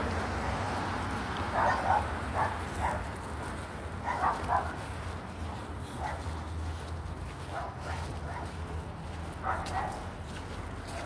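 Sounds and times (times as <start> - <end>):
dog barking: 1.5 - 3.1, 4.0 - 4.8, 6.0 - 6.3, 7.4 - 8.7, 9.4 - 10.1.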